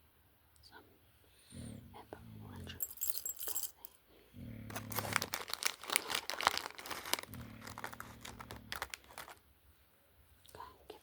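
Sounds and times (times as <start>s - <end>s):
packaging crinkling: 4.7s - 9.4s.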